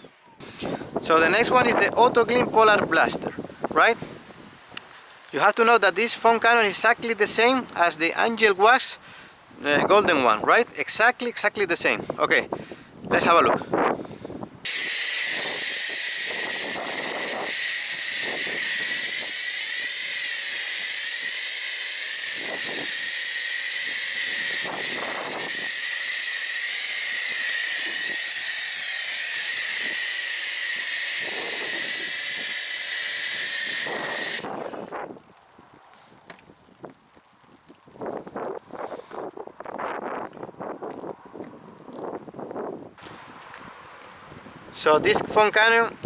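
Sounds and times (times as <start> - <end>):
pressure washer foam hissing: 14.7 - 34.9.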